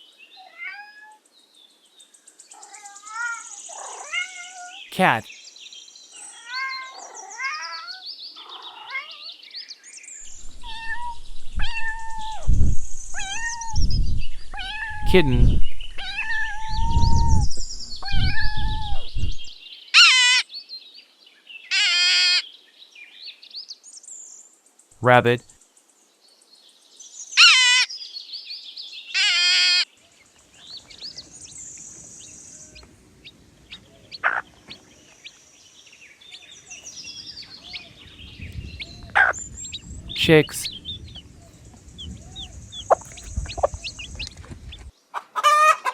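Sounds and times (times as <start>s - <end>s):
cat meowing: 0.4s - 1.2s, 4.0s - 4.8s, 10.6s - 12.5s, 13.2s - 13.8s
faint bird chirps: 33.7s - 44.9s.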